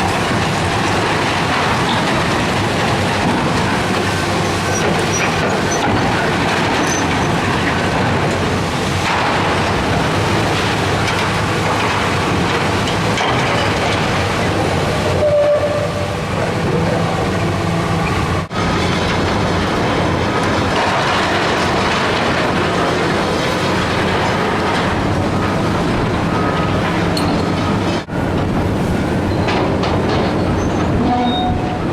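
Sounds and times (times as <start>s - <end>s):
diesel engine running: 15.9s - 30.9s
metallic squeal: 30.4s - 31.8s.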